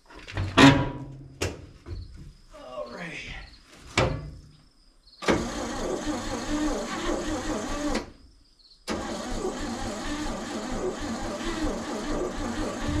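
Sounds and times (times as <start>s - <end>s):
truck engine starting and running: 5.2s - 8.2s, 8.9s - 13.0s.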